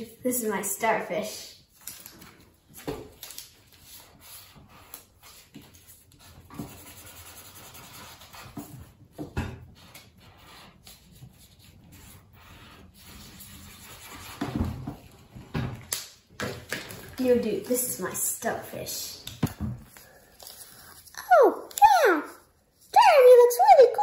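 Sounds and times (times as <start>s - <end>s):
paper rubbing and rustling: 3.2s - 9.0s, 9.8s - 15.3s.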